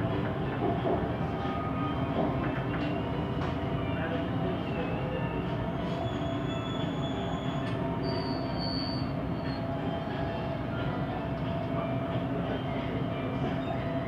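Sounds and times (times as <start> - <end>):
train rumble inside car: 0.0 - 14.0
short squeal: 5.9 - 9.7.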